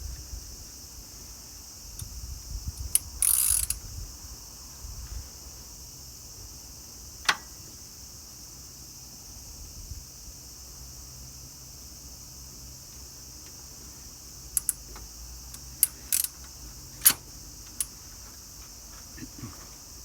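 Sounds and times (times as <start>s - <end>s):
ratchet rattle: 2.8s - 3.8s, 14.6s - 14.9s, 15.5s - 17.9s
small metallic clicks: 2.8s - 3.8s, 14.6s - 18.0s
sharp tool click: 14.6s - 14.8s.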